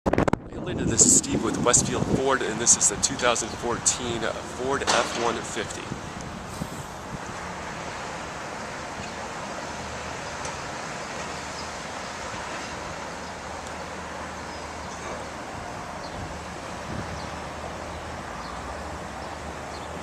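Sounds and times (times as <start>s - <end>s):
wind-like hiss: 5.6s - 20.0s.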